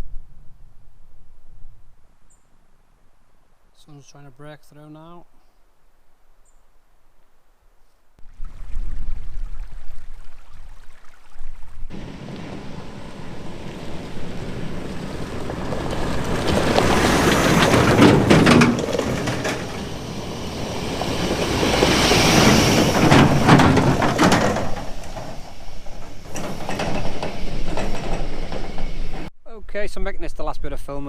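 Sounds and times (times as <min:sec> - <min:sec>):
wind buffeting microphone: 0:11.4 - 0:29.3.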